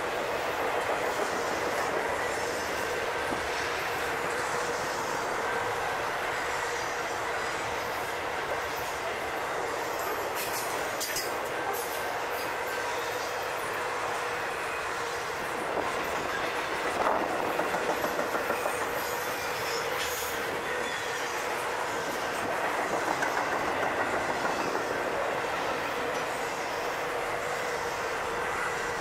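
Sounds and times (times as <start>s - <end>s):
rumble of freight cars: 0.0s - 29.0s
train wheels clicking over rail joints: 9.9s - 12.5s, 15.7s - 21.4s, 22.0s - 25.3s.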